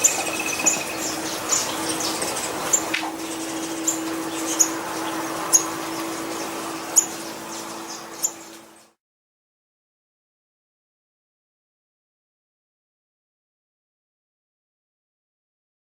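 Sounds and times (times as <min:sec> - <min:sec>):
songbirds chirping: 0:00.0 - 0:09.0
steady low hum: 0:00.0 - 0:09.0.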